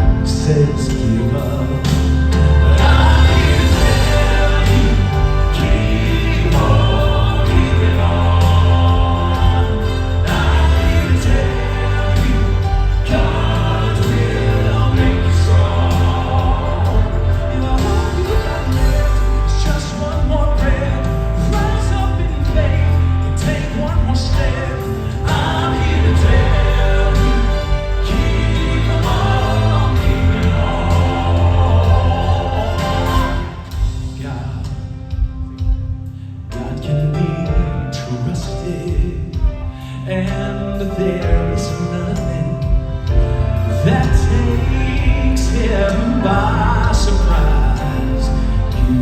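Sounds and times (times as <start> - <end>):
male vocal quartet singing in harmony: 0.0 - 35.7, 36.4 - 49.0
band with heavy bass line: 0.0 - 49.0.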